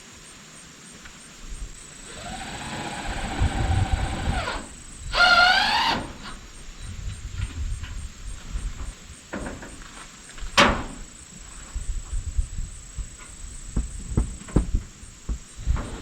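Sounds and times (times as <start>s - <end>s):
dull thuds: 13.0s - 16.0s
thumps and knocks: 13.7s - 15.9s.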